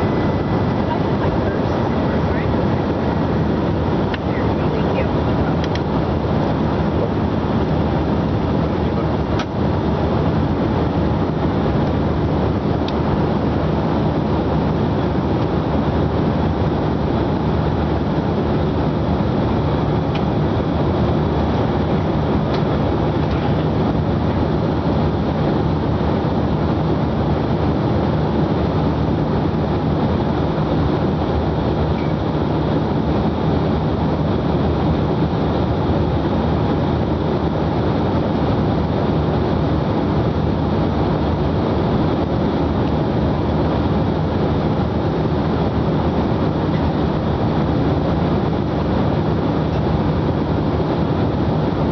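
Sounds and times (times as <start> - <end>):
low hum: 0.0 - 13.6
jet engine drone: 0.0 - 51.9
rushing airflow: 0.0 - 51.9.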